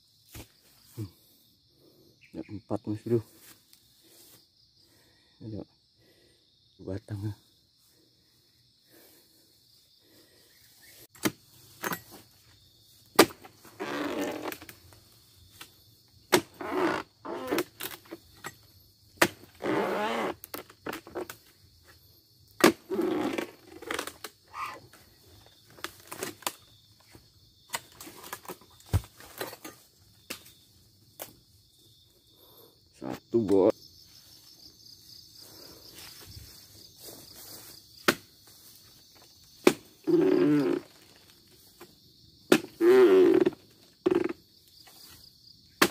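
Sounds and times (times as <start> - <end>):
insects droning: 0.0 - 45.9
palm fronds rustling and scraping: 10.0 - 18.6, 23.1 - 30.6, 35.5 - 41.9.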